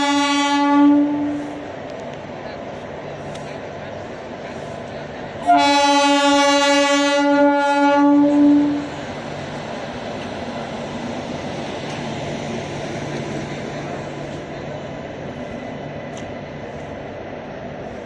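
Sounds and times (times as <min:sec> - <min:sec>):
train horn blast: 0:00.0 - 0:01.6, 0:05.4 - 0:09.0
train running rumble: 0:00.0 - 0:18.0.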